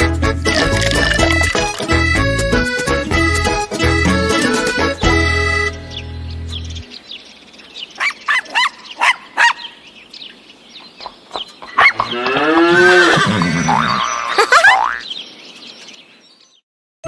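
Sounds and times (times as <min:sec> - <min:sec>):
cow mooing: 0:11.9 - 0:14.1.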